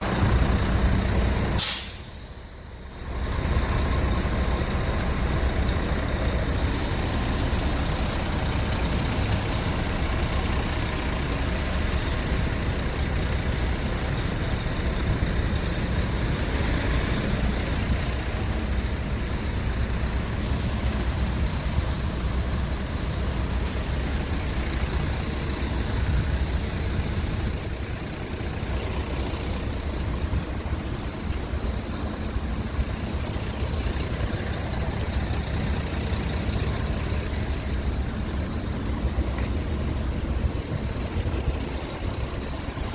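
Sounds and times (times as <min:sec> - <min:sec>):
truck diesel engine running: 0:00.0 - 0:42.9
air brake hiss: 0:01.6 - 0:02.6.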